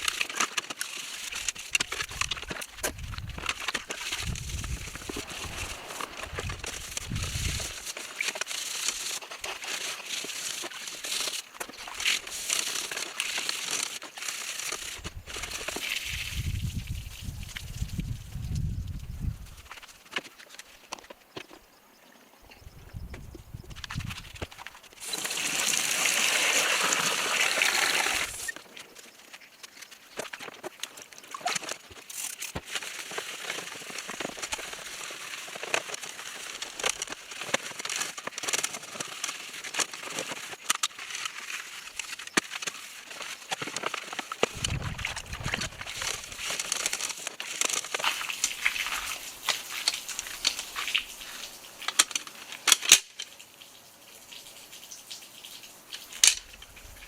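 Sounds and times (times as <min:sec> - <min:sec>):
small clicks and splashes: 0:00.0 - 0:18.7, 0:23.7 - 0:57.0
water gushing: 0:02.0 - 0:08.3, 0:25.0 - 0:28.6, 0:44.3 - 0:47.2, 0:48.0 - 0:51.9.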